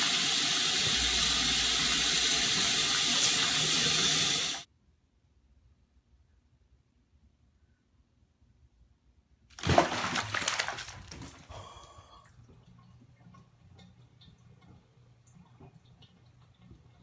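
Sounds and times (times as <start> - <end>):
water splash: 9.5 - 11.5
water sloshing: 9.5 - 11.6.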